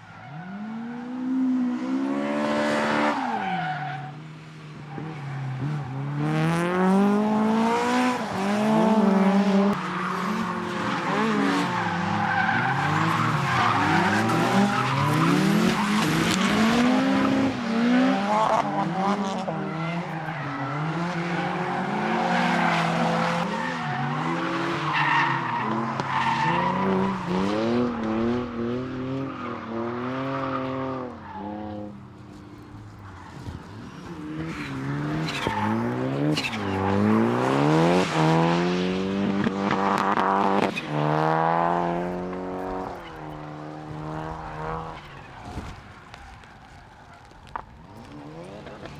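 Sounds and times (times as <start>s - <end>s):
car engines revving: 0.0s - 48.9s
tyre squeal: 29.0s - 37.3s.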